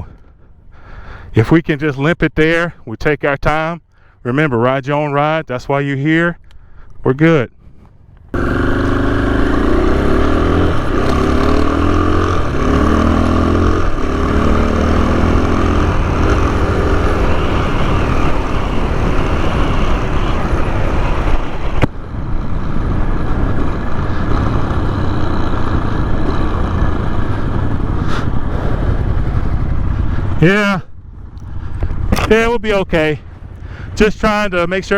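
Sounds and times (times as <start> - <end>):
motorcycle engine accelerating: 8.3 - 30.4
wind rush: 8.4 - 32.5.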